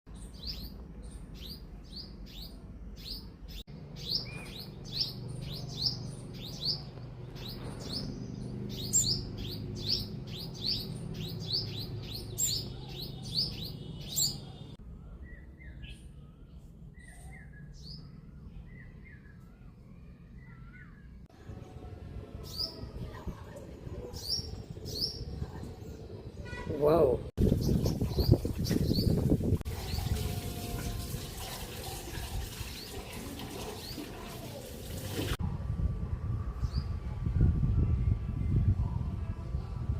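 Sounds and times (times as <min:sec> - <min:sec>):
baby birds chirping: 0:00.2 - 0:14.8.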